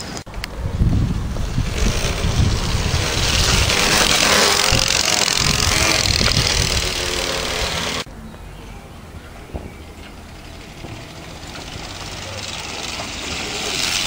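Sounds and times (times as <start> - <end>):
wind noise on microphone: 0.0 - 8.1.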